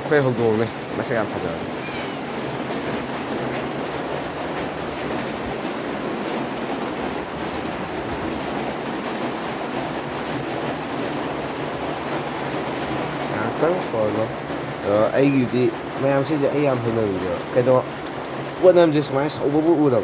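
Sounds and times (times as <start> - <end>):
water boiling in a pot: 0.0 - 20.0.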